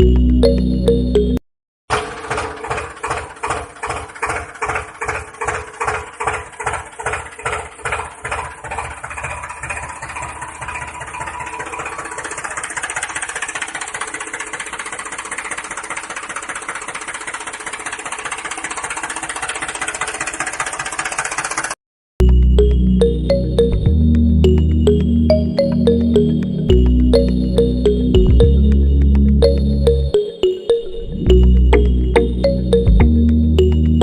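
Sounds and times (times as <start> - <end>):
small engine running: 1.9 - 22.7.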